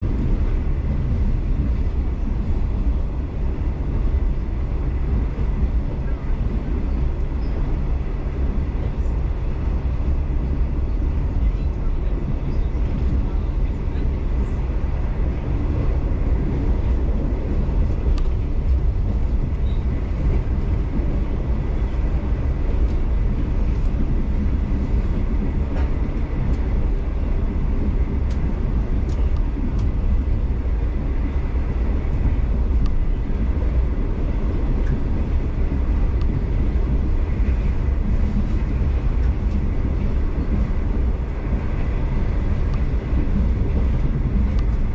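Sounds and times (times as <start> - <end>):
train wheels rumbling on rails: 0.0 - 44.9
faint clicks: 18.1 - 19.2, 32.1 - 33.0.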